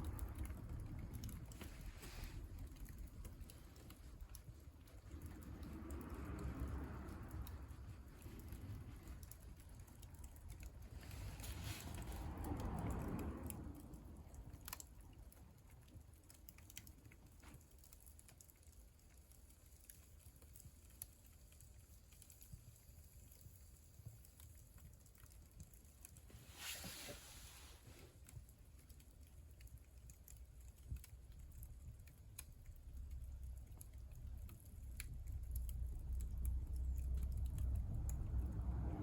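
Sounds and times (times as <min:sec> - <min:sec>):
wood fire crackling: 0:00.0 - 0:39.0
rustling: 0:26.3 - 0:28.2.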